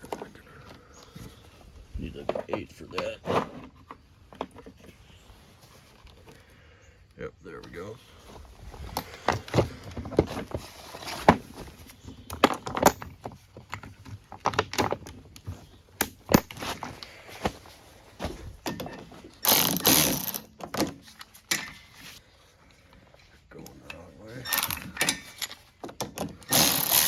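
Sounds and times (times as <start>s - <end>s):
metal clinks and knocks: 8.8s - 10.4s, 12.1s - 15.4s, 16.0s - 17.1s, 18.6s - 22.1s, 24.4s - 27.0s
socket ratchet clicking: 19.4s - 20.5s, 24.5s - 25.2s, 26.4s - 27.0s.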